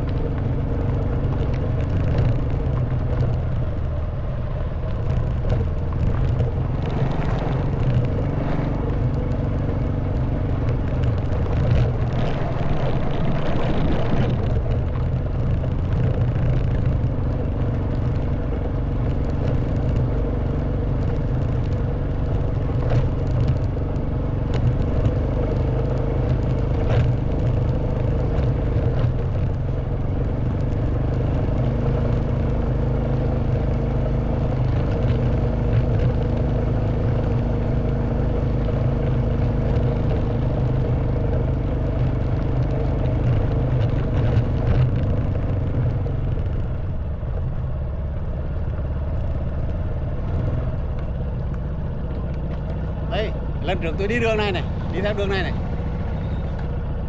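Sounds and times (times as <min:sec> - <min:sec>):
wind noise: 0:00.0 - 0:24.0
motorcycle engine running: 0:00.0 - 0:57.0.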